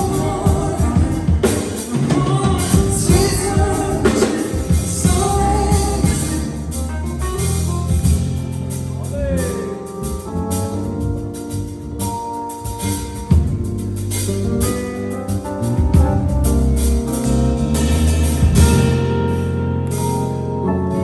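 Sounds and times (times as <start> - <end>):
person singing: 0.0 - 6.9
live band playing: 0.0 - 21.0.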